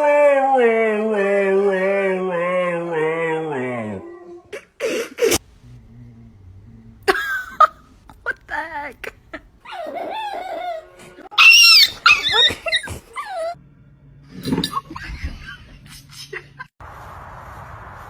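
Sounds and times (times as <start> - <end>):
low steady hum: 5.4 - 9.7
dog whining and yelping: 9.6 - 13.6.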